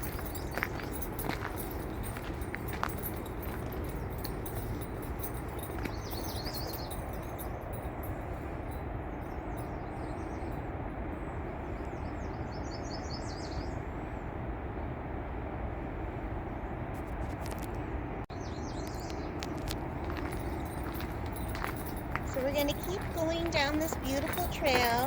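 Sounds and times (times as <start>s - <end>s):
songbirds chirping: 0.0s - 14.2s, 18.3s - 25.0s.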